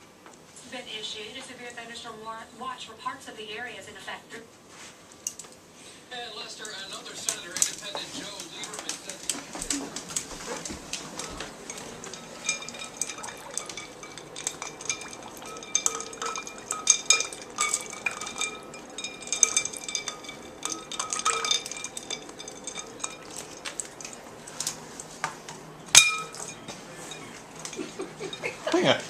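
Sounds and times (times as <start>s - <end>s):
ice cubes clinking in bowl: 6.6s - 25.3s, 25.9s - 28.7s.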